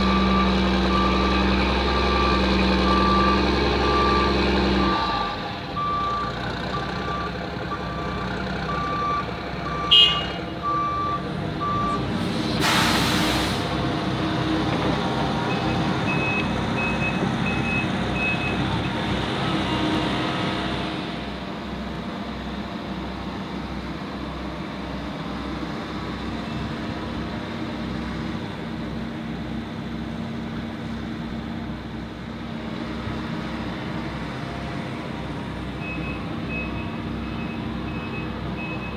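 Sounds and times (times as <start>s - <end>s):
diesel engines running: 0.0s - 38.9s
hiss of air: 12.2s - 13.8s.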